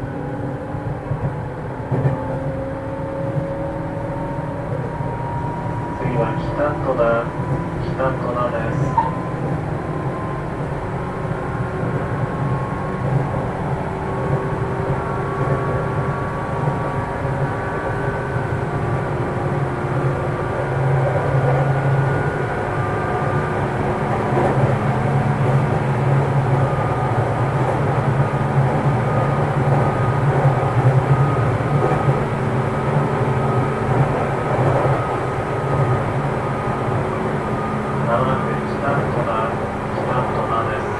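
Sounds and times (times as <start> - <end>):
train wheels rolling on rails: 20.7 - 40.9.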